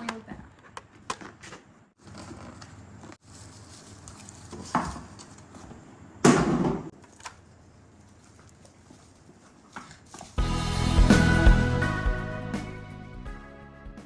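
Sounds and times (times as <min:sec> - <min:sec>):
handling noise of items: 0:00.0 - 0:10.4.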